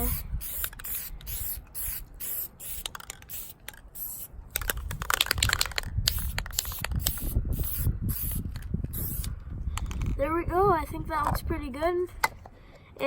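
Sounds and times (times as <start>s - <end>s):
spray paint can hissing: 0.0s - 9.3s.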